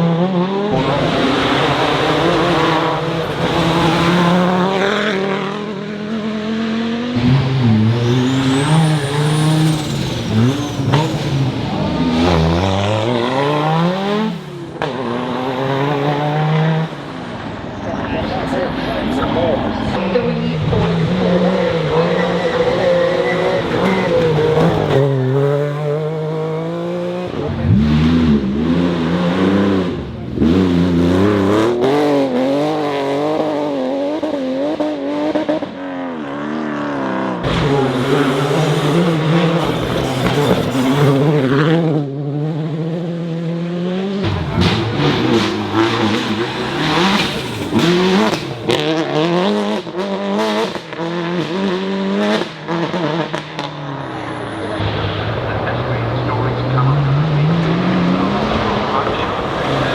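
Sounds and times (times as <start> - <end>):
rally car engines revving: 0.0 - 59.9
tyre squeal: 8.0 - 11.6, 22.2 - 25.7, 37.5 - 41.8.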